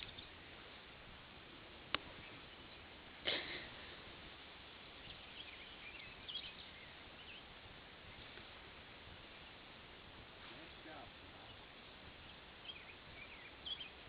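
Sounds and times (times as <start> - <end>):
faint bird chirps: 0.0 - 0.4, 4.6 - 8.4, 10.5 - 14.0.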